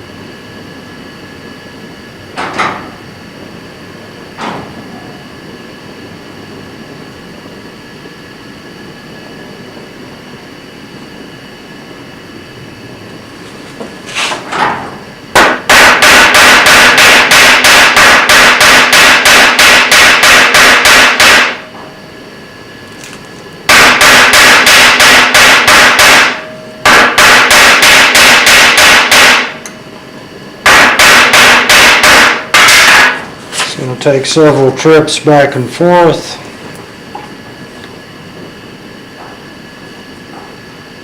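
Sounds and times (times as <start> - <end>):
hammer striking metal on anvil: 15.4 - 21.6, 23.7 - 29.8, 30.7 - 33.2.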